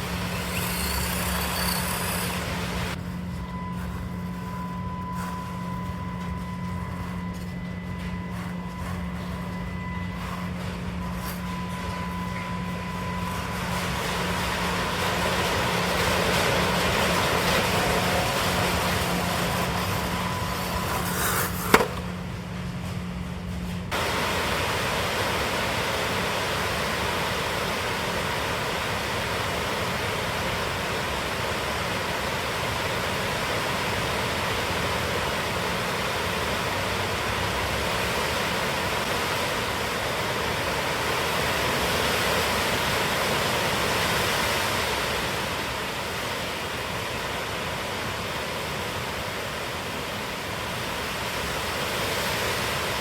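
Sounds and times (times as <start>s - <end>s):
small electric motor and gears humming: 0.0s - 24.1s.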